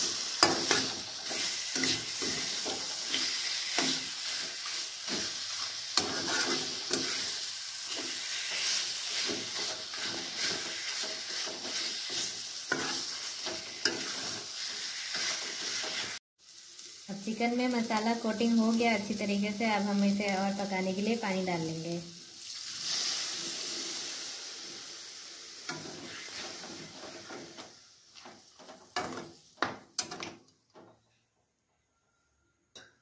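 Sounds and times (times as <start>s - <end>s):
metal spatula scraping a pan: 0.0s - 16.2s, 25.7s - 29.4s
chicken sizzling in a pan: 0.0s - 30.0s.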